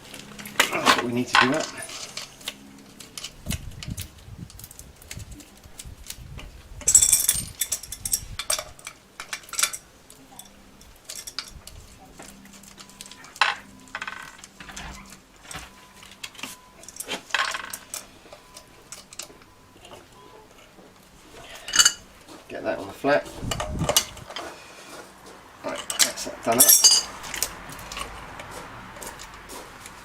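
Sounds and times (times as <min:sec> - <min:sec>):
metal parts clinking and knocking: 0:00.2 - 0:05.3, 0:06.8 - 0:20.7, 0:21.5 - 0:22.0, 0:23.5 - 0:24.6, 0:25.7 - 0:28.2.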